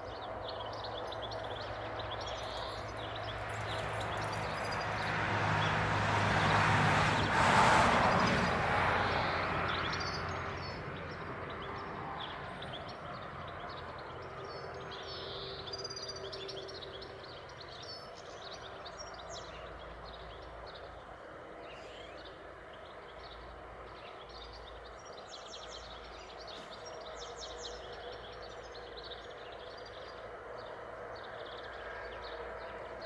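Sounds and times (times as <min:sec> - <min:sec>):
small birds chirping: 0:00.0 - 0:05.7
vehicle passing by: 0:00.2 - 0:14.9.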